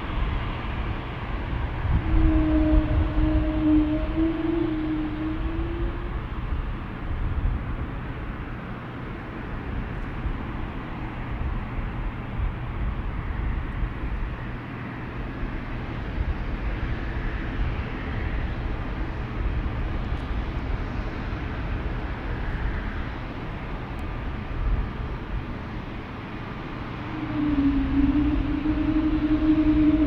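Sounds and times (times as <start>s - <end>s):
aircraft engine rush: 0.0s - 30.0s
wind buffeting microphone: 0.0s - 30.0s.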